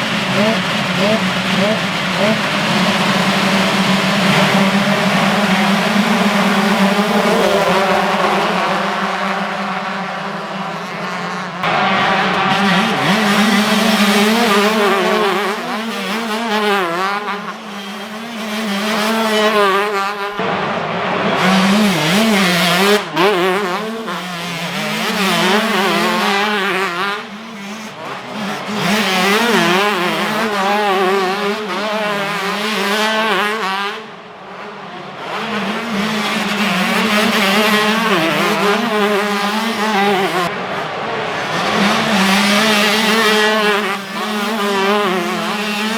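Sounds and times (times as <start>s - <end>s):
motocross bikes revving: 0.0s - 45.9s.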